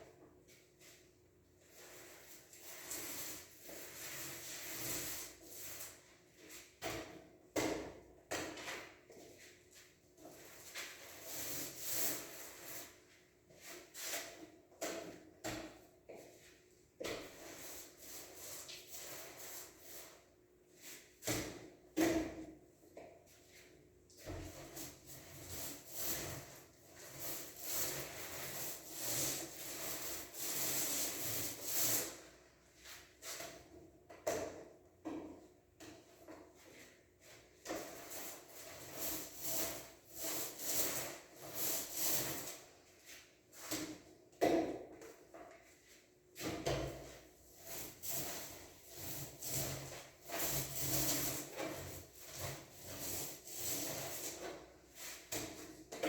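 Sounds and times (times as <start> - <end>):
roller spreading wall putty: 25.1 - 32.2, 47.6 - 54.4
tool rasping putty on wall: 47.6 - 56.0.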